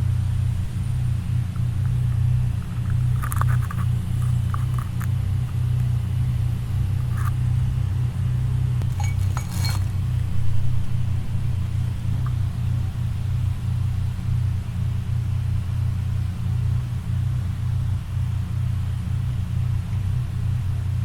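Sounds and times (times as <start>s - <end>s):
loud steady low hum: 0.0s - 21.0s
metallic clinks of tools: 8.8s - 10.0s.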